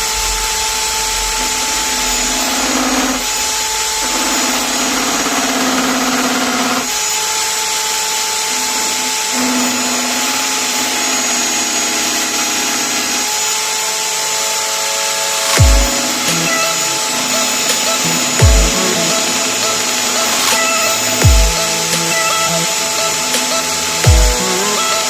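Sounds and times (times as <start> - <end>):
lathe motor whining: 0.0 - 25.0
low drone: 14.1 - 25.0.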